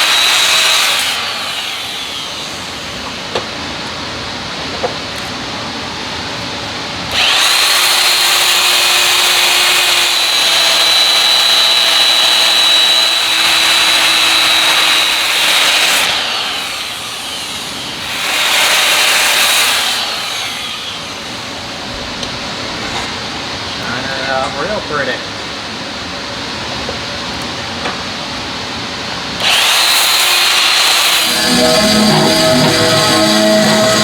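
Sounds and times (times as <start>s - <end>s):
power tool whining: 0.0s - 3.6s, 7.1s - 21.9s, 29.4s - 34.0s.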